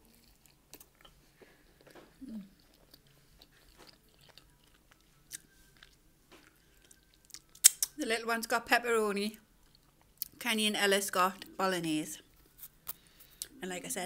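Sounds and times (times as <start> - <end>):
close-miked chewing: 0.0 - 8.0, 9.6 - 10.4
wet mouth clicks and smacks: 7.3 - 8.0.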